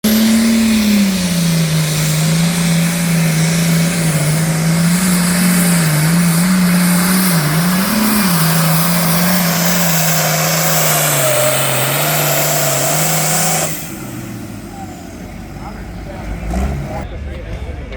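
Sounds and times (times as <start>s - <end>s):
tractor engine running hard: 0.0s - 17.9s.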